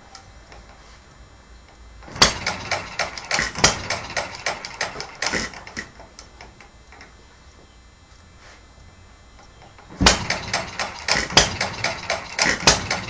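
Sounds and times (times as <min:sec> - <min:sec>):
engine firing bang: 0:02.0 - 0:05.8, 0:09.9 - 0:13.0
engine clicking: 0:02.0 - 0:07.1, 0:09.4 - 0:13.0.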